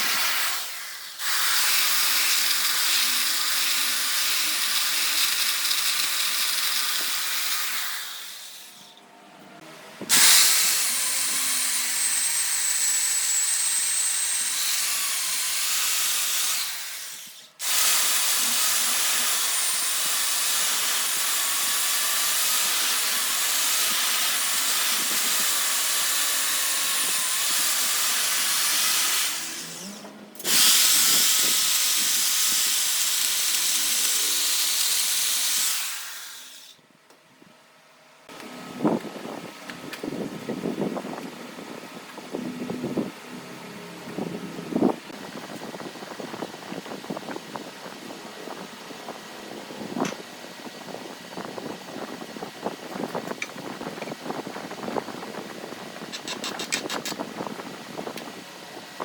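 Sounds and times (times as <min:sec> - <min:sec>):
lathe tool hissing on wood: 0:00.0 - 0:08.9, 0:10.1 - 0:36.8.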